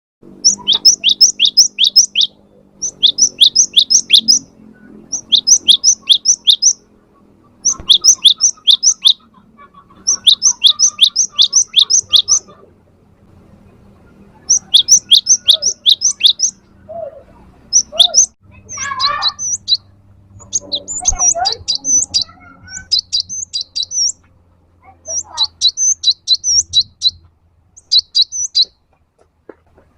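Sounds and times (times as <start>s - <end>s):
bird singing high notes: 0.4s - 9.2s, 10.0s - 12.5s, 14.2s - 16.9s, 17.6s - 24.2s, 25.0s - 27.2s, 27.8s - 28.7s
lower jumbled warbling call: 0.4s - 12.7s, 14.3s - 24.3s, 25.0s - 28.8s.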